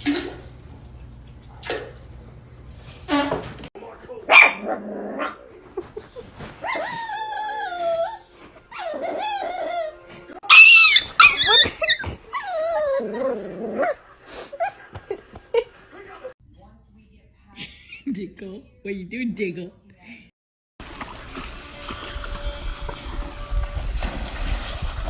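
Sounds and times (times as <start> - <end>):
dog whining and yelping: 6.6 - 14.0.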